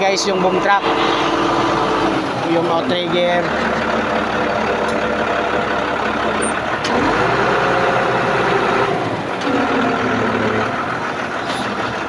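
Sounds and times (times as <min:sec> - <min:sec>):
hydraulic jacks working: 0:00.0 - 0:12.0
truck engine running: 0:00.0 - 0:12.0.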